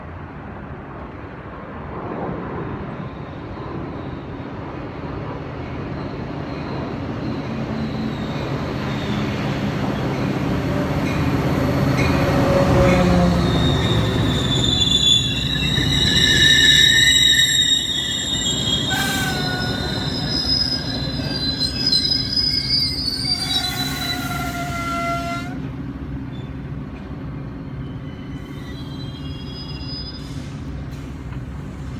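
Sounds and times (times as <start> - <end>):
train rumble: 0.0 - 31.9
wheel squeal: 11.0 - 25.6, 27.7 - 30.4.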